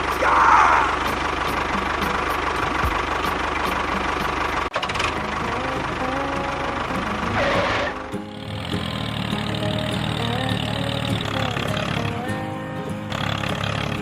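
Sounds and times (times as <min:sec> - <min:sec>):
small motor knocking rhythmically: 0:08.2 - 0:12.1.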